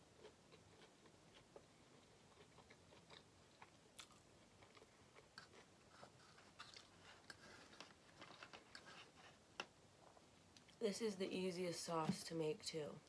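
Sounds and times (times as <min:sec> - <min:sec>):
chewing fries: 0:00.0 - 0:09.4.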